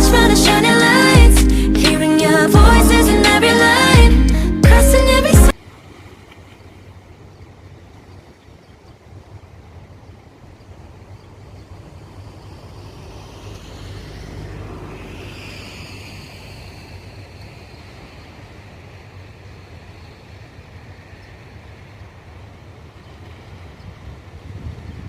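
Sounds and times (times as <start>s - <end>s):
steady outdoor rumble: 0.0s - 5.6s, 9.0s - 25.0s
vehicle passing by: 11.8s - 18.2s.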